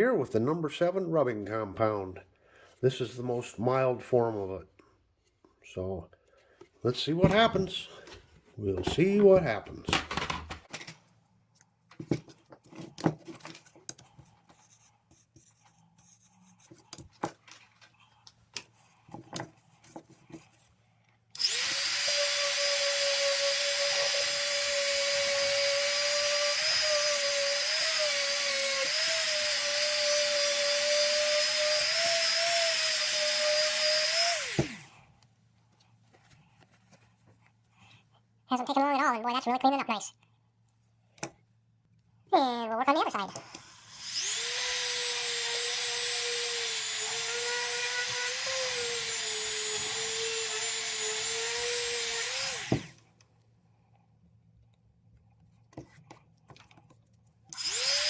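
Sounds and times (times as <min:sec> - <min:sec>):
electric power tool whining: 0:21.4 - 0:34.9, 0:43.5 - 0:53.0, 0:57.6 - 0:58.0.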